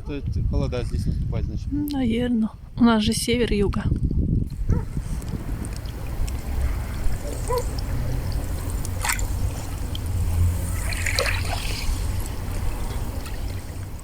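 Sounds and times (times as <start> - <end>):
wind rumbling on microphone: 0.0 - 14.0
small waves splashing: 4.8 - 14.0.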